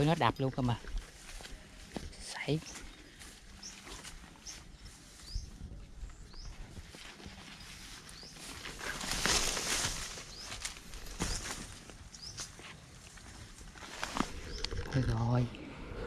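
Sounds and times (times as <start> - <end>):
rustling: 6.8 - 15.1
bird chirping: 12.1 - 12.4, 14.3 - 15.5.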